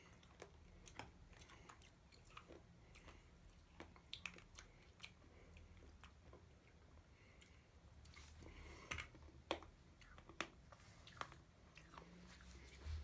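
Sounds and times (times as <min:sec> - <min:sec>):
chewing hard candy: 0:00.0 - 0:07.6.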